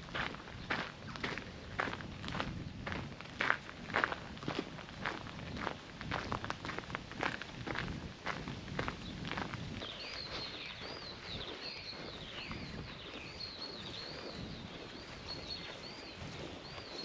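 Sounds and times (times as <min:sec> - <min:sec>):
songbird chirping: 0:08.3 - 0:17.0.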